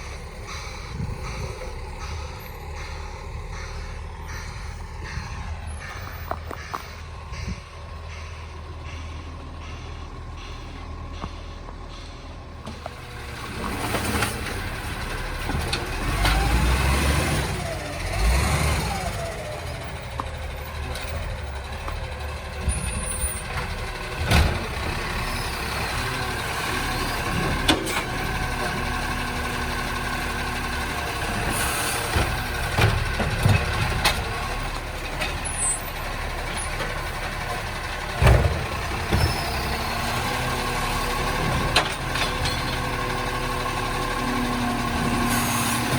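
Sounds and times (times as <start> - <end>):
garbage truck running: 0.0 - 45.9
sharp knocks and bangs: 38.0 - 40.1.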